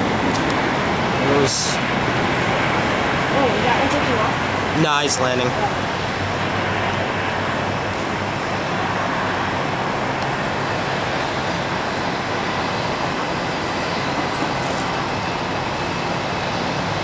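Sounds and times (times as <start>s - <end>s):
jet aircraft roar: 0.0s - 17.0s.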